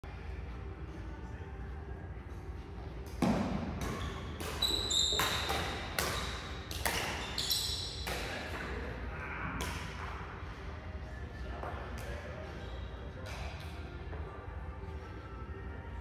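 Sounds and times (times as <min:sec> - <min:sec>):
rackets hitting shuttlecock: 0:03.0 - 0:08.9
shoes squeaking on court floor: 0:03.7 - 0:08.3.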